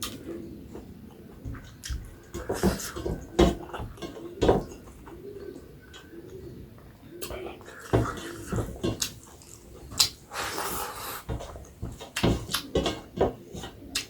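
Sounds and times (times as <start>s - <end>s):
bird cooing: 0.0s - 9.0s, 12.4s - 14.0s
chewing and slurping: 7.6s - 12.7s
wet eating smacks: 8.0s - 11.3s, 12.1s - 12.7s.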